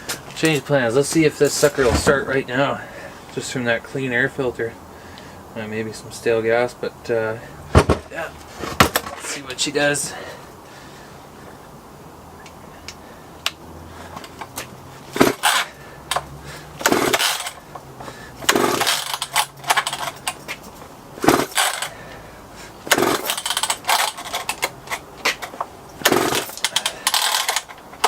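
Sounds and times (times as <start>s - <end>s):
chainsaw starter cord pulls: 15.2s - 17.7s, 18.4s - 22.0s, 22.9s - 28.0s.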